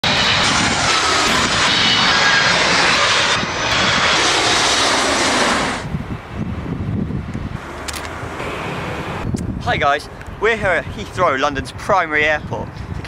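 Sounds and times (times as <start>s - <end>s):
jet airliner passing overhead: 0.0s - 13.0s.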